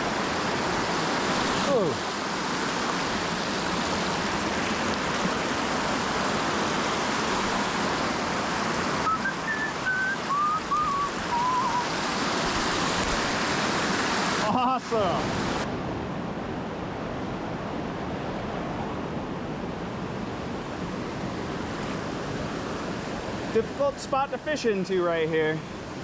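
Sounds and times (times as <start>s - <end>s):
creek and waterfall rushing: 0.0s - 17.3s, 20.6s - 26.0s
high whistled notes: 9.0s - 12.0s.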